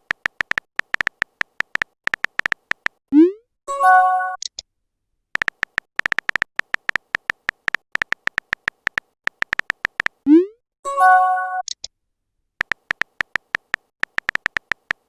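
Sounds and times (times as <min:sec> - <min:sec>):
keyboard typing clicks: 0:00.0 - 0:03.0, 0:05.4 - 0:10.2, 0:12.6 - 0:15.0
app notification chime: 0:03.2 - 0:04.4, 0:10.3 - 0:11.6.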